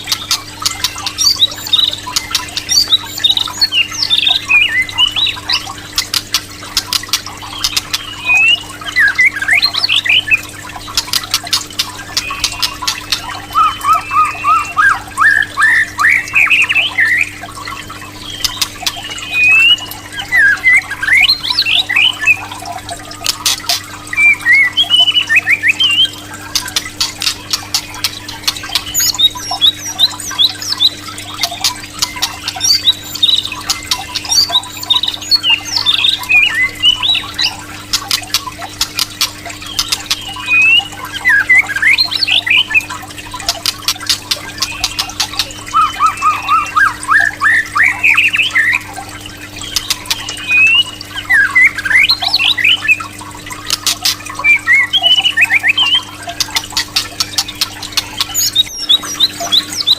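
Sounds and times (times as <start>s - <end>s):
bird singing whistled trills: 0.0s - 5.8s, 6.9s - 11.0s, 12.0s - 37.7s, 39.6s - 43.0s, 44.3s - 49.0s, 49.6s - 53.1s, 54.0s - 59.9s
sharp bird clicks: 9.6s - 22.4s, 23.2s - 42.8s, 43.4s - 46.7s.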